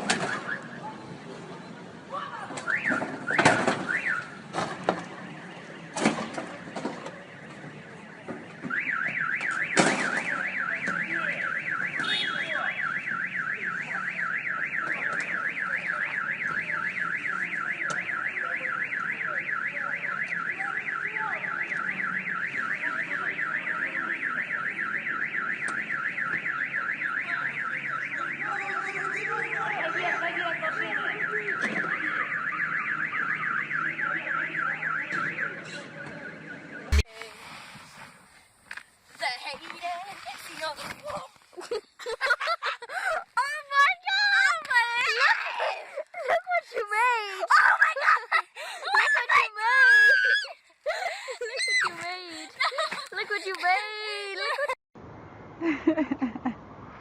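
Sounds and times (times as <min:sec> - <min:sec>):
car alarm warbling: 0:02.6 - 0:04.4, 0:08.7 - 0:37.1.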